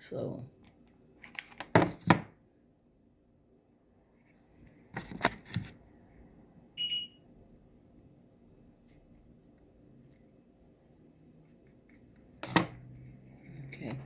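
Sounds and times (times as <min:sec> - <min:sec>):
high-pitched electronic beep: 0:06.8 - 0:07.2.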